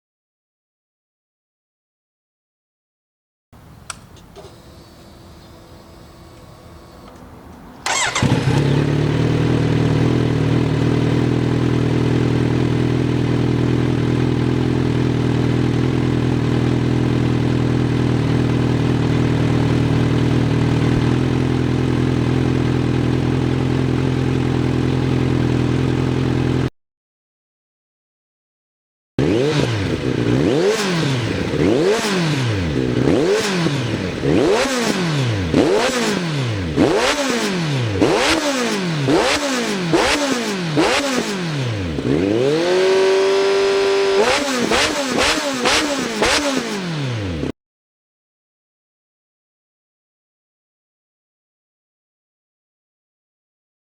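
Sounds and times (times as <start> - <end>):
motorcycle engine revving: 7.8 - 26.7, 29.2 - 47.6
motorcycle engine idling: 7.9 - 26.7, 31.2 - 34.7.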